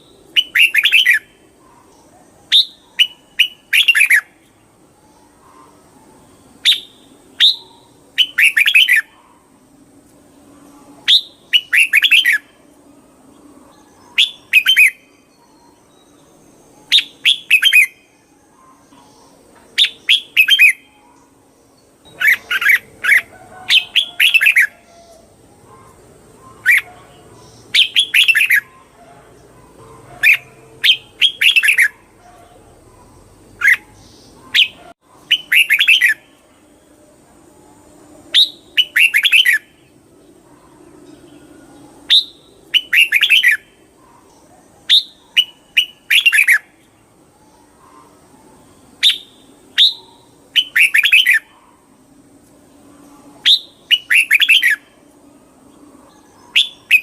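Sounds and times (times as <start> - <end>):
bird singing whistled phrases: 0.0 - 1.3, 2.5 - 4.3, 6.6 - 9.2, 11.0 - 12.6, 14.1 - 16.1, 16.8 - 18.9, 19.8 - 21.2, 27.7 - 28.9, 30.2 - 32.0, 34.5 - 36.3, 38.3 - 39.7, 42.1 - 43.7, 44.9 - 46.7, 49.0 - 51.5, 53.4 - 54.9, 56.4 - 57.0.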